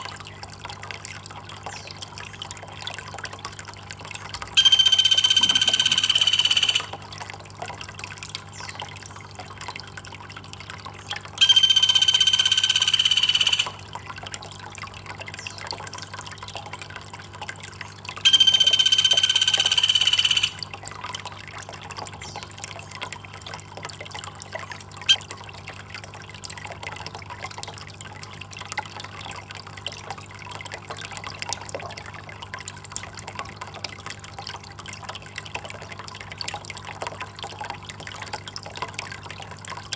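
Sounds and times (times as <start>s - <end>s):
trickling water: 0.0s - 39.9s
high flat call: 4.6s - 7.0s, 11.4s - 13.9s, 18.3s - 20.6s.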